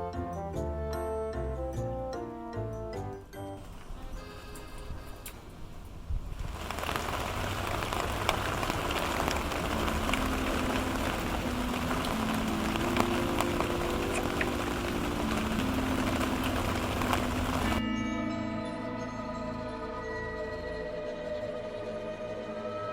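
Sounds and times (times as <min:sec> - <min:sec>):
soft background music: 0:00.0 - 0:05.2, 0:08.9 - 0:22.9
heavy rain falling: 0:05.7 - 0:17.8.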